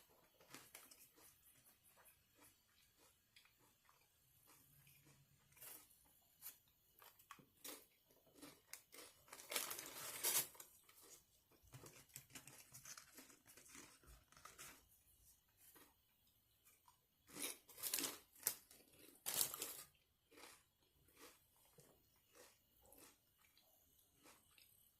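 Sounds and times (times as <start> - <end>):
food wrapper crinkling and tearing: 5.5 - 14.9, 17.3 - 19.9.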